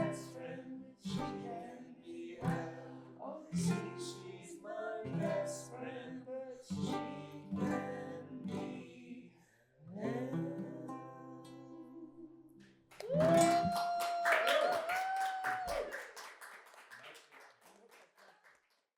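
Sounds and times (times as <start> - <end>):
acoustic guitar strumming chords: 0.0 - 6.0, 6.7 - 9.2.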